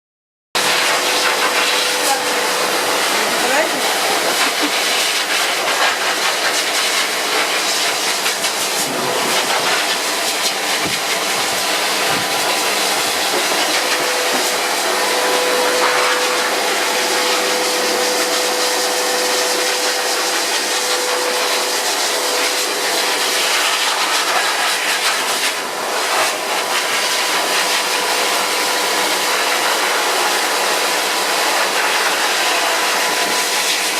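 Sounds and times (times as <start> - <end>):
dog dryer blowing air: 0.6 - 33.9.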